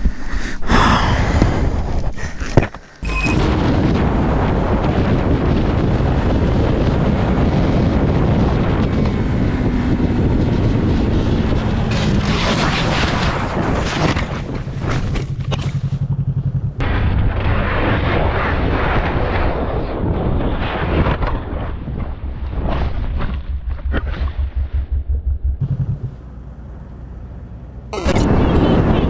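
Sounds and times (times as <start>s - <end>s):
wind buffeting microphone: 3.5s - 15.1s.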